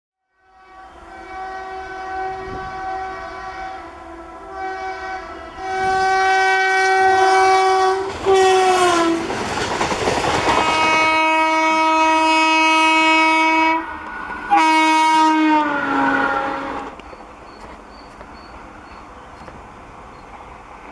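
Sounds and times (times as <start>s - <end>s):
train horn blasts: 0.3s - 9.4s, 10.5s - 17.0s
train passing: 0.3s - 20.9s.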